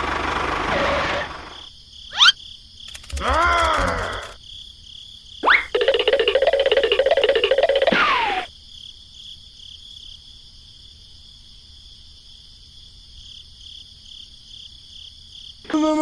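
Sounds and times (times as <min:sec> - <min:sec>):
crickets chirring: 0:01.4 - 0:07.9.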